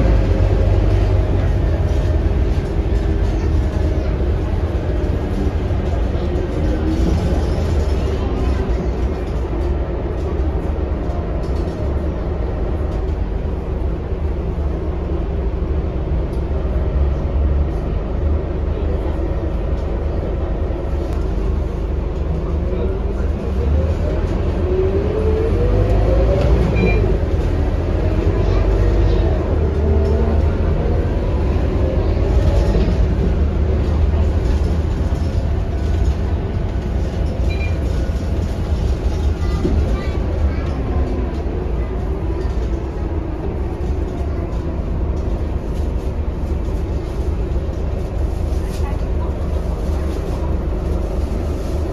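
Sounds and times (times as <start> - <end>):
bus engine rumble: 0.0 - 51.9
road noise: 0.0 - 51.9.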